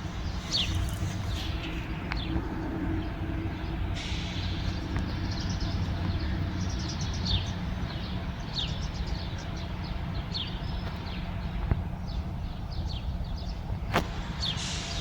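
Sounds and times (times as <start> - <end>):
low rumble: 0.0 - 5.0
birds chirping: 0.0 - 13.8.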